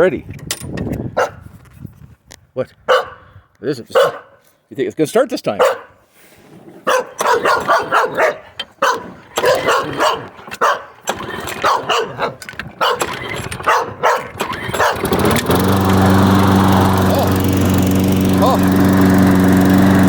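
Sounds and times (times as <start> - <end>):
puppy barking: 1.2 - 1.4, 2.9 - 3.2, 3.9 - 4.4, 5.6 - 6.0, 6.8 - 15.0
lawn mower engine running: 7.0 - 20.0.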